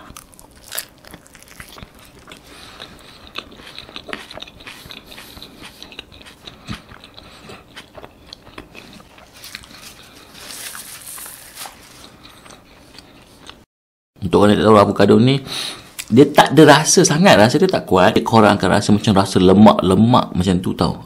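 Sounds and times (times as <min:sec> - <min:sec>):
close-miked chewing and crunching: 0:00.0 - 0:13.7.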